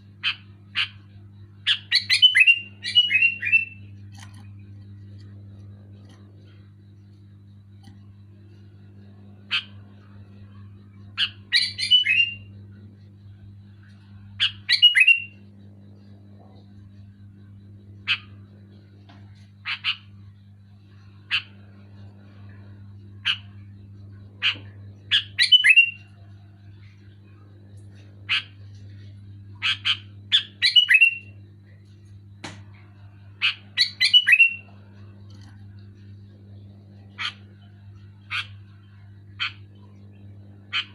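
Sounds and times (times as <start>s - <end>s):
steady low hum: 0.0s - 40.9s
bird calling: 1.6s - 4.4s, 24.4s - 26.1s, 29.6s - 31.3s, 33.4s - 35.1s, 37.1s - 37.5s, 38.2s - 40.9s
bulbul calling: 24.4s - 26.0s, 29.6s - 31.3s, 33.4s - 34.7s.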